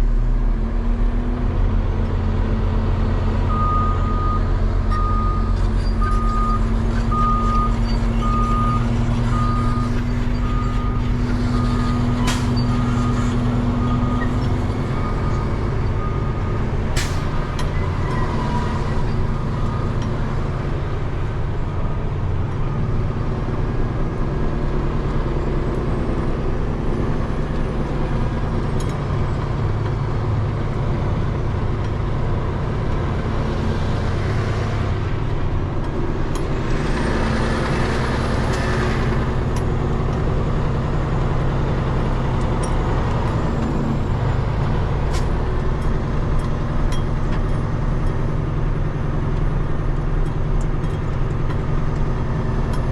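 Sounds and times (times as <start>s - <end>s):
truck diesel engine running: 1.3s - 52.9s.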